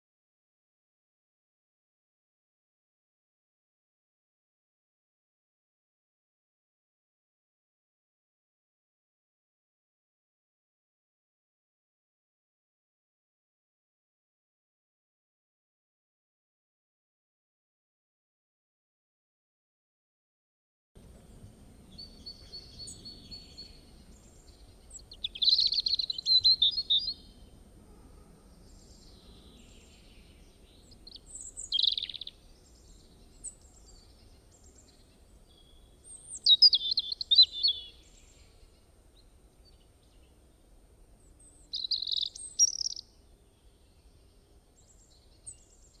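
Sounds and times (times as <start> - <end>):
songbird chirping song: 21.0 - 46.0
soft bird chirps: 21.2 - 27.6, 28.4 - 46.0.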